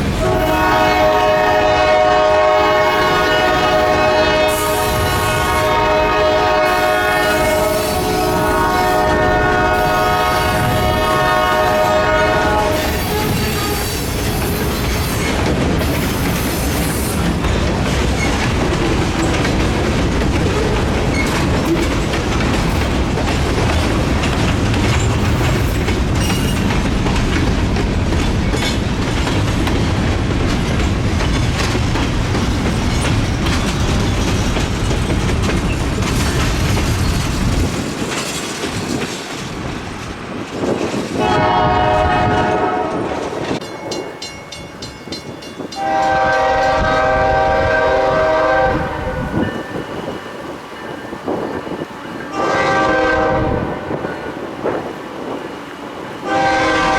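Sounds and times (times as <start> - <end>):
train wheels clattering on rails: 0.0 - 56.9
locomotive air horn: 0.2 - 14.6, 41.2 - 43.2, 45.8 - 49.4, 52.3 - 53.8, 56.2 - 56.9.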